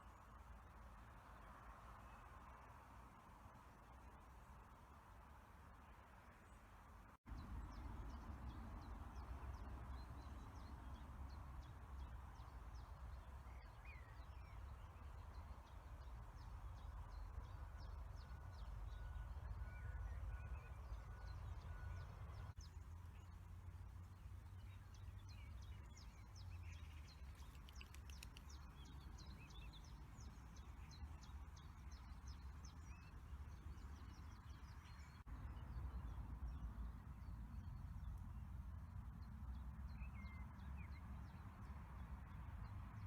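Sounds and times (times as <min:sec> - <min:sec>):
small birds chirping: 0:21.0 - 0:38.2.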